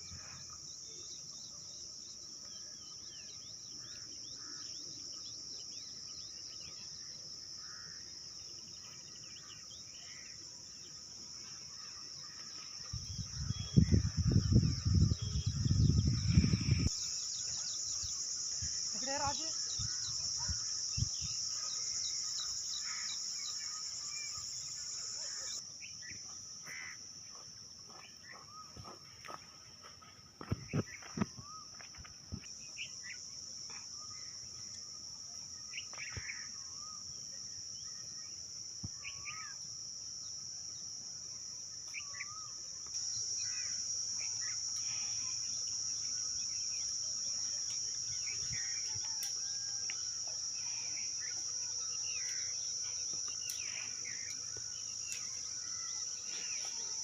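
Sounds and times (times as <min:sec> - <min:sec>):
insects droning: 0:00.0 - 0:57.0
birds chirping and whistling: 0:12.9 - 0:18.2.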